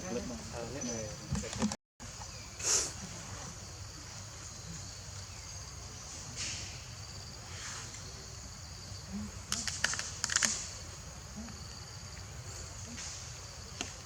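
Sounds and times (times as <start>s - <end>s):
sharp clicks: 9.5s - 10.7s.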